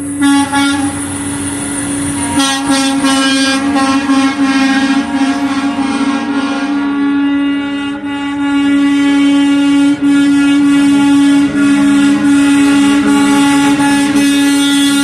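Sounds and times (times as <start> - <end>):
truck air horn blast: 0.2 - 1.1, 2.1 - 15.0.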